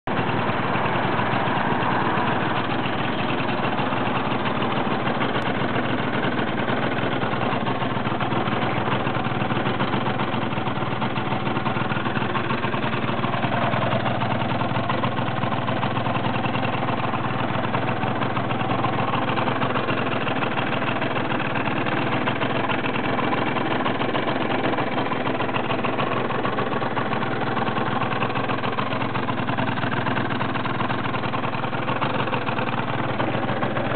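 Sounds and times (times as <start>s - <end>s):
scooter two-stroke engine idling: 0.0s - 33.9s.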